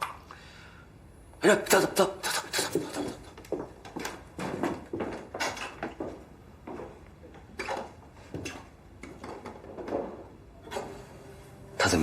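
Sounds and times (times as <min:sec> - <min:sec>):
objects knocking and clattering: 0:02.8 - 0:11.0.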